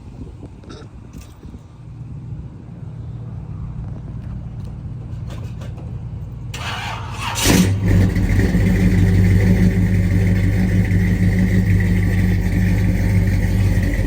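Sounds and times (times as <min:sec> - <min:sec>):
low engine hum: 0:00.0 - 0:14.0
engine cranking and starting: 0:06.5 - 0:14.0
engine idling loudly: 0:07.3 - 0:14.0.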